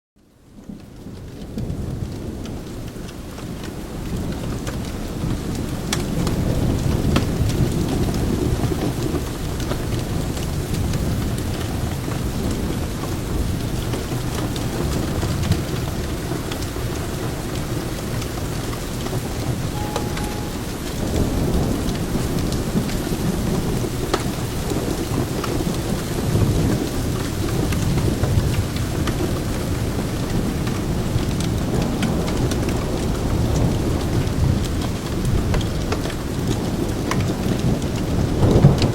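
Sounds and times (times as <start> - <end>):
steady rain: 0.2 - 38.9.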